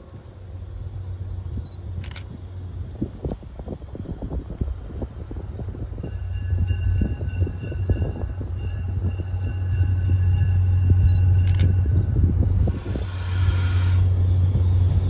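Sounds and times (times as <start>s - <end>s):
train rumbling past: 0.0s - 15.0s
high-pitched squeal: 9.5s - 15.0s.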